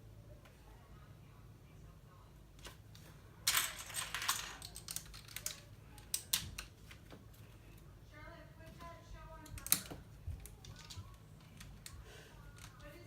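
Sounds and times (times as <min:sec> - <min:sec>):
plastic bricks clattering: 0:03.5 - 0:06.7.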